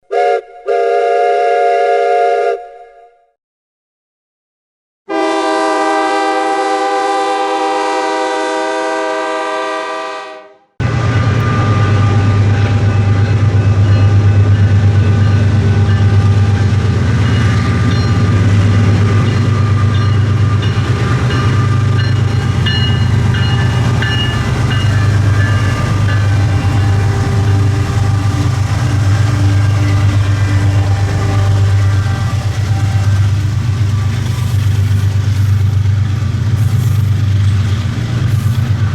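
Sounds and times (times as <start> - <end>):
locomotive air horn blasts: 0.1 - 3.2, 5.1 - 34.2
diesel locomotive engines droning: 5.2 - 38.9
rail clatter: 12.5 - 38.9.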